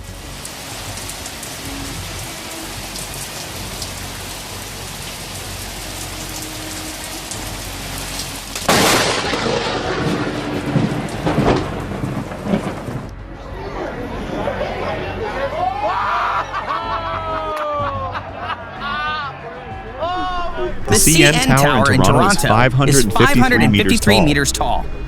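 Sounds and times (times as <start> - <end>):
heavy rain: 0.0 - 13.1.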